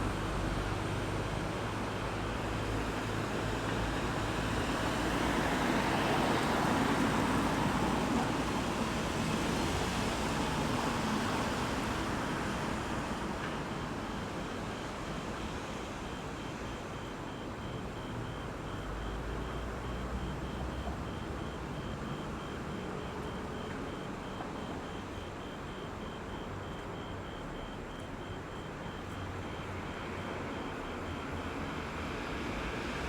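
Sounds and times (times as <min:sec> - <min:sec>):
faint high beep: 0:16.1 - 0:32.0.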